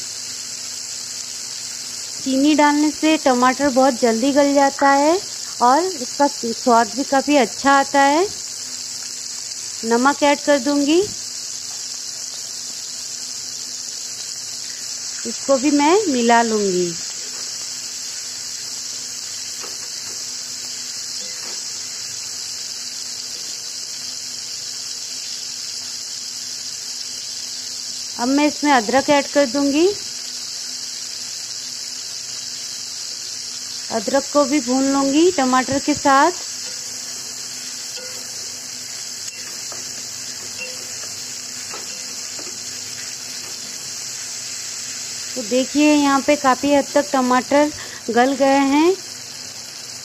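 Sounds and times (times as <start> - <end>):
tomatoes sizzling in oil: 0.0 - 50.0
spatula tapping pan: 37.9 - 38.6, 39.3 - 43.8.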